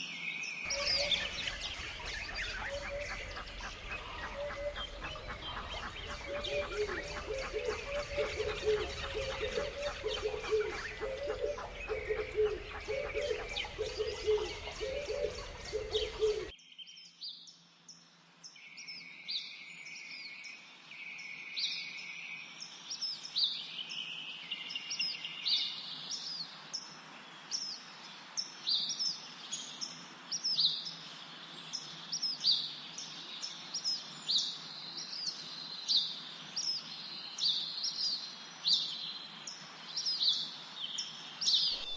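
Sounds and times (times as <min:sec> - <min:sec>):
ducks quacking: 0:00.7 - 0:16.5
small birds chirping: 0:00.7 - 0:16.5.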